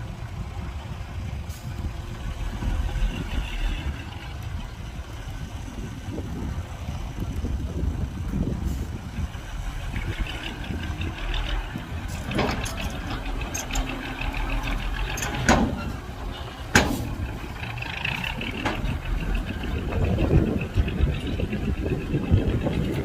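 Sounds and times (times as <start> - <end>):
heavy diesel machinery running: 0.0 - 23.0
sharp metallic knocks: 12.2 - 16.0, 16.7 - 17.4.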